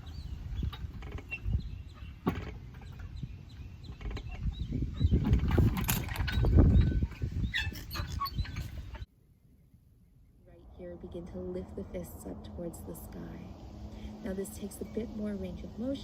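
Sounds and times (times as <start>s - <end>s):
small birds chirping: 0.0s - 5.7s, 6.3s - 9.1s
low rumbling noise: 8.9s - 16.0s.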